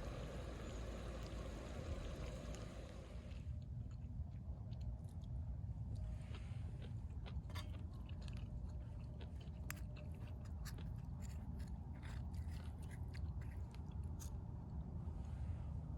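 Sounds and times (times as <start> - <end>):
steady low rumble: 0.0 - 3.6
person chewing food: 3.6 - 14.8.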